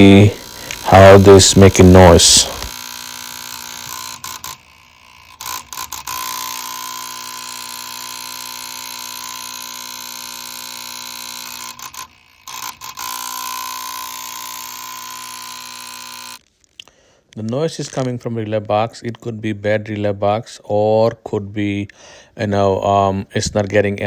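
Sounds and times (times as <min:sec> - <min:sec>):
relay box buzzing: 0:00.0 - 0:16.4.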